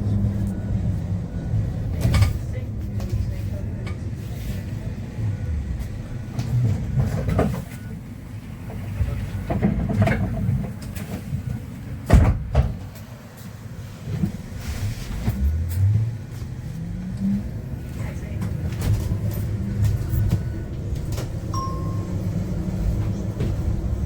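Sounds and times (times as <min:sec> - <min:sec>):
bus ride rumble: 0:00.0 - 0:24.0
clunks and knocks: 0:06.3 - 0:07.9, 0:08.6 - 0:13.1, 0:18.4 - 0:24.0.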